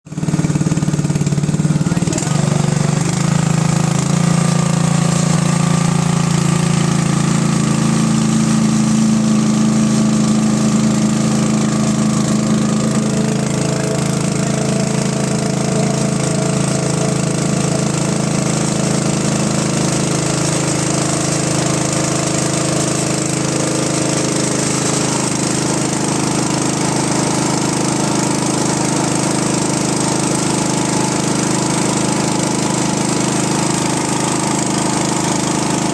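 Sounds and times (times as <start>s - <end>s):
water pump engine running: 0.0s - 35.9s.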